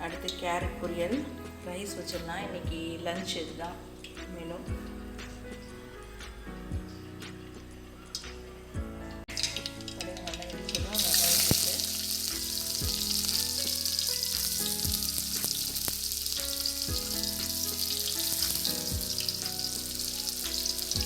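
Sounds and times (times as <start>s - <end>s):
soft background music: 0.0s - 21.0s
hot oil sizzling in a pan: 9.3s - 21.0s.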